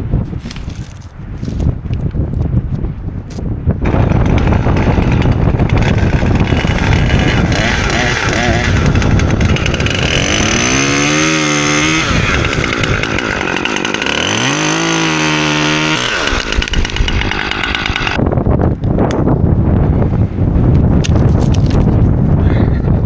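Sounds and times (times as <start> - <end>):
chainsaw revving: 3.8 - 18.2.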